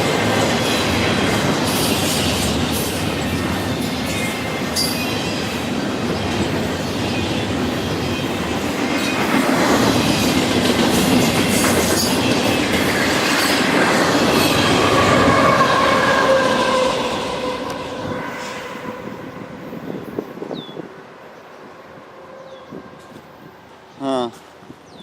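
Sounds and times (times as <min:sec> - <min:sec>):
train wheel clatter: 0:00.0 - 0:16.8
diesel locomotive engine passing: 0:00.0 - 0:24.0.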